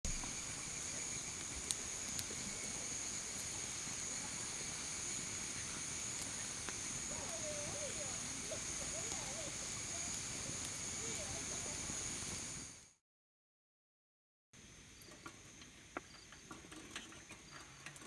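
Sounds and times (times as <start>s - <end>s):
night insects trilling: 0.1s - 12.9s.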